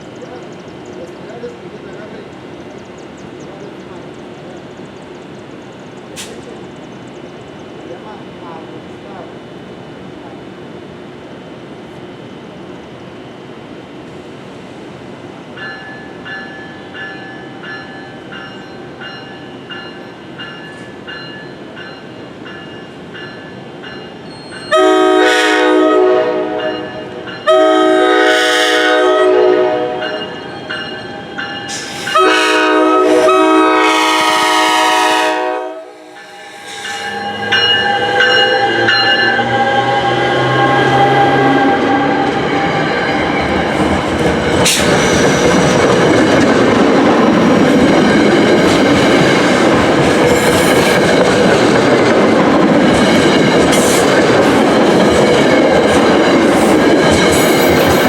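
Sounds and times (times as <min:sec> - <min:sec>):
train rumble: 0:00.0 - 0:58.0
crossing bells clanging: 0:15.6 - 0:25.1, 0:26.6 - 0:28.0, 0:29.9 - 0:32.9, 0:36.0 - 0:39.9
train air horn blasts: 0:24.7 - 0:30.4, 0:31.7 - 0:42.2.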